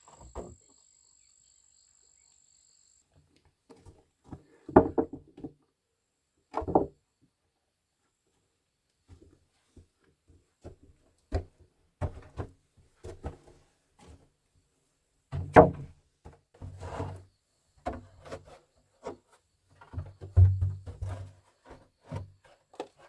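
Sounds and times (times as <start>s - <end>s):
objects knocking and scraping: 3.7s - 5.6s, 17.8s - 23.0s.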